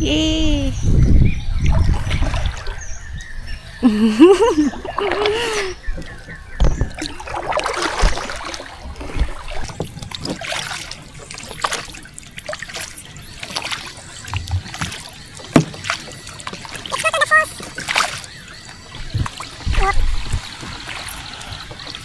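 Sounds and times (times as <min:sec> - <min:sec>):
paddle splashing in water: 0:01.6 - 0:03.0, 0:04.3 - 0:22.0.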